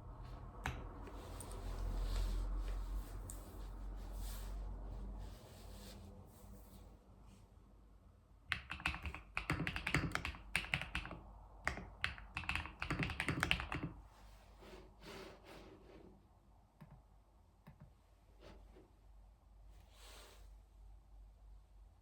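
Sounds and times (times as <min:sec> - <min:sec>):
typing on a keyboard: 0:08.5 - 0:14.0.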